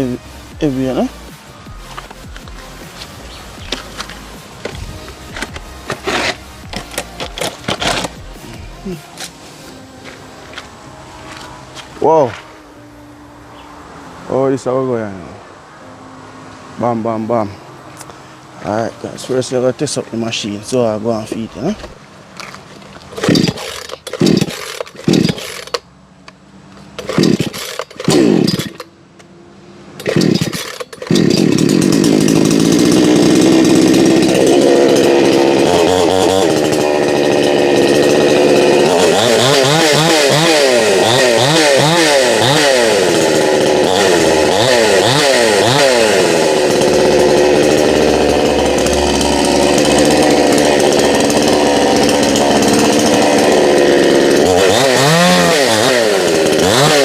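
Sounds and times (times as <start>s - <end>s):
chainsaw engine revving: 0.0s - 1.1s, 1.9s - 9.3s, 22.4s - 25.8s, 26.9s - 28.9s, 30.0s - 57.0s
chainsaw starter cord pulls: 1.9s - 8.2s, 21.3s - 25.8s, 26.8s - 28.9s, 30.0s - 57.0s.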